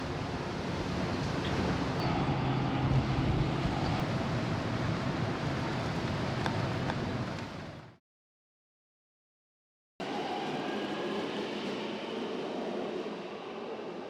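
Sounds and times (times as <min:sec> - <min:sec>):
ferry engine drone: 0:00.0 - 0:07.8
water rushing: 0:00.0 - 0:07.9
wind: 0:00.0 - 0:08.0, 0:10.0 - 0:14.0.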